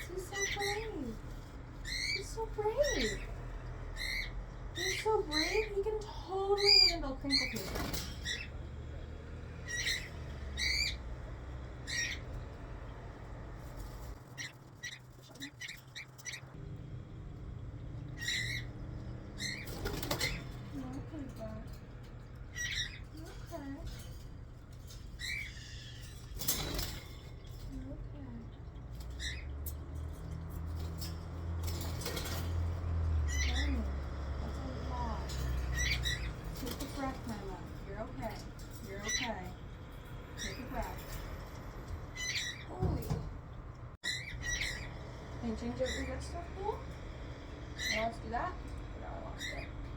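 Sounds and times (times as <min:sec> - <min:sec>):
parrot chirps: 0:00.0 - 0:08.6, 0:09.5 - 0:12.6, 0:13.7 - 0:16.6, 0:18.0 - 0:20.8, 0:22.4 - 0:24.2, 0:24.8 - 0:27.8, 0:28.6 - 0:29.8, 0:44.0 - 0:45.1
parrot calling: 0:00.0 - 0:16.6, 0:17.9 - 0:24.2, 0:24.8 - 0:27.8, 0:32.1 - 0:39.7, 0:44.0 - 0:49.9
low hum: 0:00.0 - 0:42.6.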